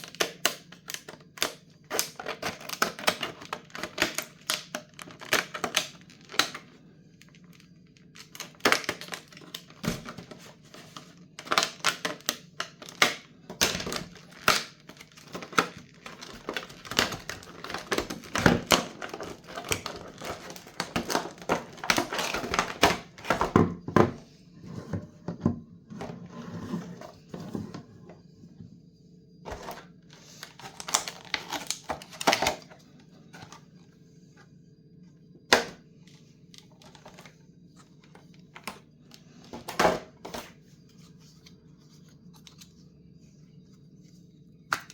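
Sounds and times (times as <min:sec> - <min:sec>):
plastic or paper crinkling: 0:00.0 - 0:23.6, 0:29.5 - 0:33.7.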